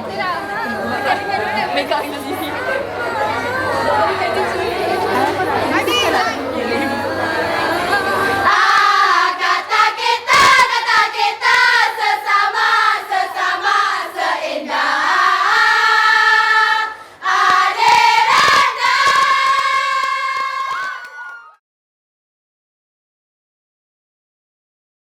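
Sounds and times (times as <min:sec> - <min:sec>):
choir singing: 0:06.4 - 0:20.9.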